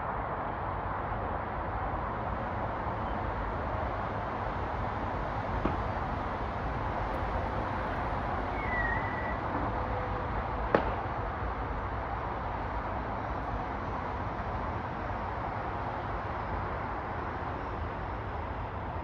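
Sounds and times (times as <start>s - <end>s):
outdoor background noise: 0.0s - 19.0s
short high bird call: 8.5s - 9.4s.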